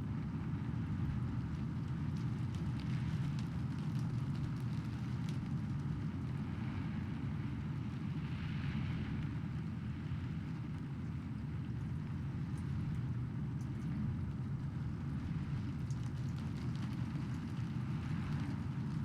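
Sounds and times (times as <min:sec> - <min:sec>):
sharp raindrop ticks: 0:01.8 - 0:06.4, 0:15.2 - 0:19.0
steady rain: 0:13.9 - 0:19.0.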